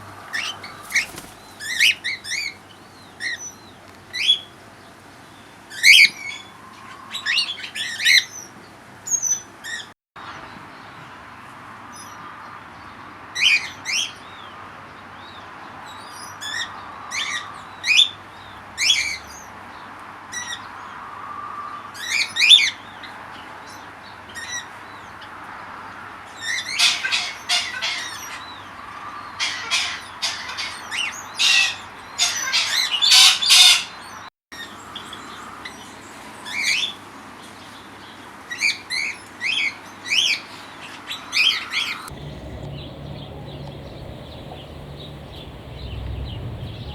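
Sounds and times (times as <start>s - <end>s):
birds chirping and calling: 0.3s - 4.4s, 41.5s - 46.9s.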